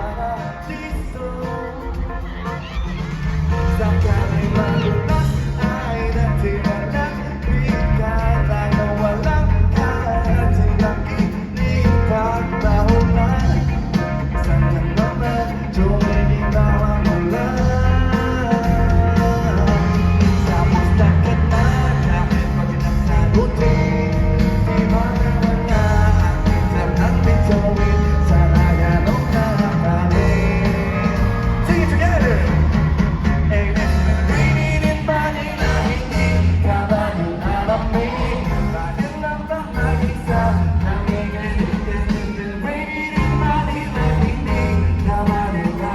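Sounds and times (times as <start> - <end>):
bass: 0.0 - 45.9
drums: 0.0 - 45.9
lead vocal singing: 0.0 - 45.9
live pop-rock band: 0.0 - 45.9.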